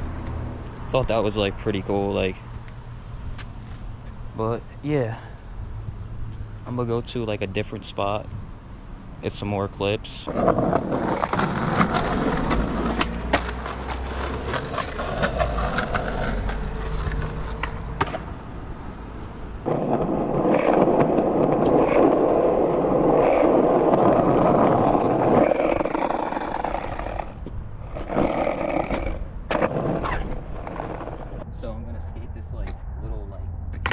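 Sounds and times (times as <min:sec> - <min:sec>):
skateboard wheels rolling on pavement: 0:00.0 - 0:31.4, 0:33.6 - 0:33.9
skateboard clicks and knocks: 0:10.3 - 0:18.4, 0:19.6 - 0:31.4.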